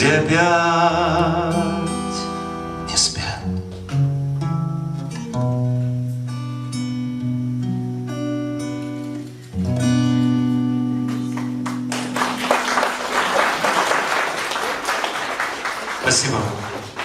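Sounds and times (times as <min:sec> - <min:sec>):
acoustic guitar chords: 0:00.0 - 0:13.5.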